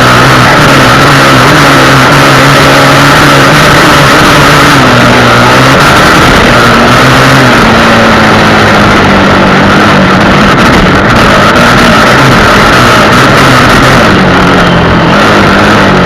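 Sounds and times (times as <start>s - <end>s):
loud rushing wind noise: 0.0s - 16.0s
motorcycle engine running: 0.0s - 16.0s.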